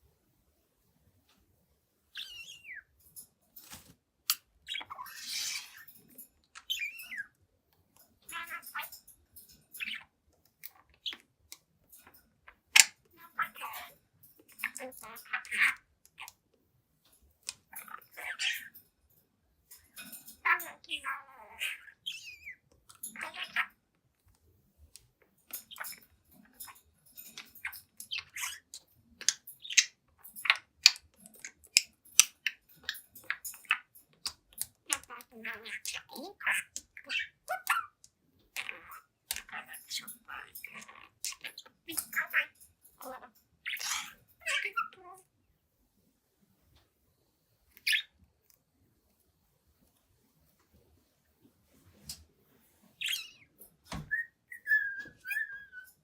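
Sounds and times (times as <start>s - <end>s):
budgerigar chirping and chattering: 2.2s - 2.9s, 4.3s - 6.0s, 6.6s - 7.4s, 12.6s - 16.4s, 17.7s - 18.8s, 20.0s - 23.8s, 25.5s - 45.2s, 47.8s - 48.2s, 53.0s - 56.0s.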